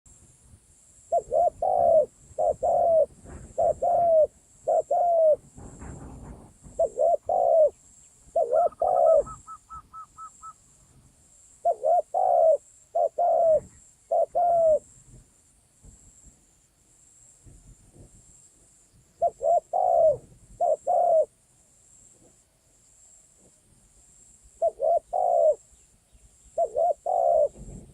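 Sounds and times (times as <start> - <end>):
dove cooing: 1.1 - 10.6, 11.6 - 14.9, 19.2 - 21.3, 24.6 - 25.6, 26.6 - 27.9
short high bird-luring call: 8.4 - 10.7.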